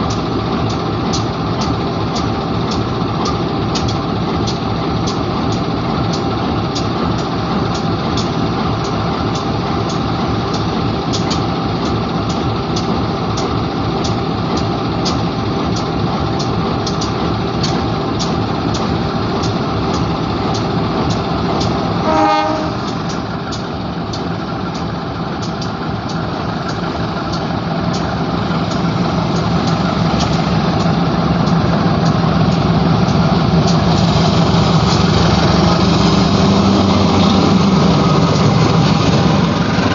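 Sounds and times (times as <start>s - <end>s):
low hum: 0.0s - 39.9s
train cars rumbling past: 0.0s - 39.9s
train wheels clicking: 0.0s - 39.9s
short horn toot: 22.0s - 22.9s.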